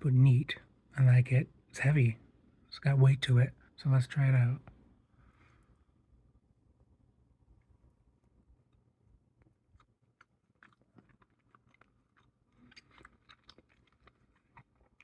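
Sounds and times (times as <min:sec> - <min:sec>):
chewing mouth clicks: 0:09.4 - 0:15.0.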